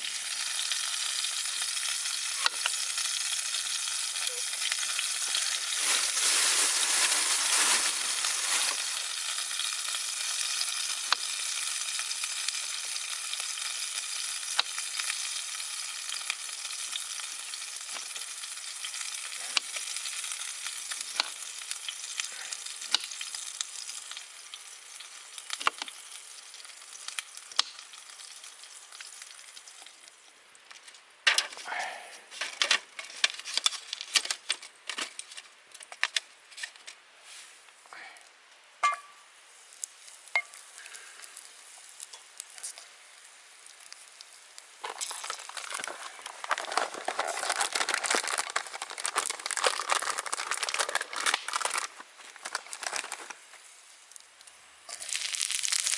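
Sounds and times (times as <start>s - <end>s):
meat sizzling: 0.0s - 30.4s, 38.8s - 55.9s
rustling: 5.3s - 9.0s, 44.8s - 53.7s.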